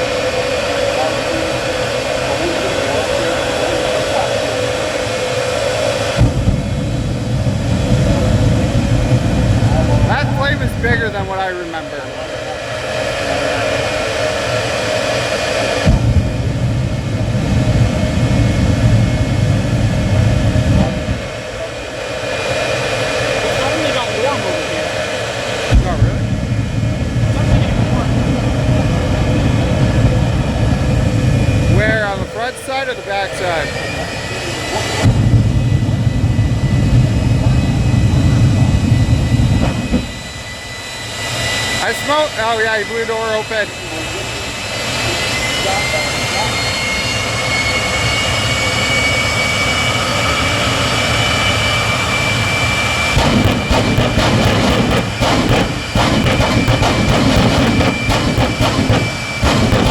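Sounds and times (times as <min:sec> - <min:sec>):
jet engine rushing whine: 0:00.0 - 0:59.9.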